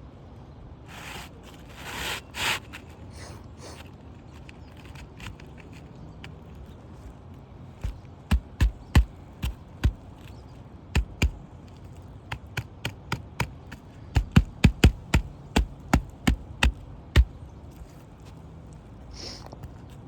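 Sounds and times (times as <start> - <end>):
hammer blows on a roof: 7.8 - 10.3, 11.0 - 11.4, 12.3 - 17.4.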